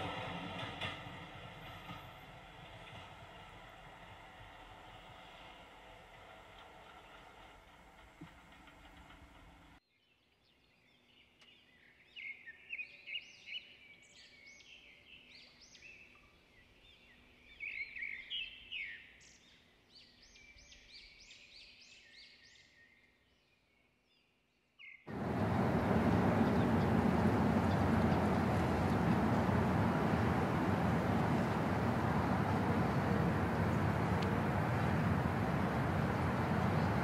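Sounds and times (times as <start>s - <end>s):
loud rush of noise: 25.1s - 37.0s.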